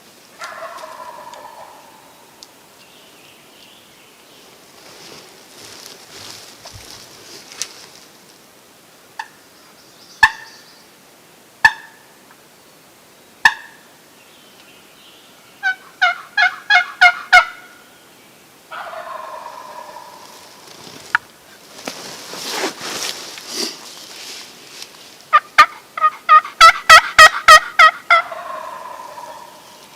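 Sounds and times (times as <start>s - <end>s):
turkey call clucks and yelps: 0.4s - 2.3s, 11.6s - 12.0s, 13.4s - 13.8s, 15.6s - 17.8s, 18.7s - 20.5s, 25.3s - 29.9s
turkey gobbling: 0.4s - 2.3s, 11.6s - 12.0s, 13.4s - 13.8s, 15.6s - 17.8s, 18.7s - 20.6s, 25.3s - 29.9s.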